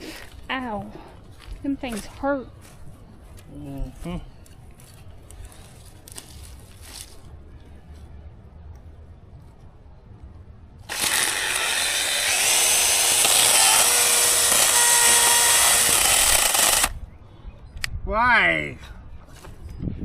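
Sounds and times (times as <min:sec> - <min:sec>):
chainsaw running at high speed: 0:10.9 - 0:16.9.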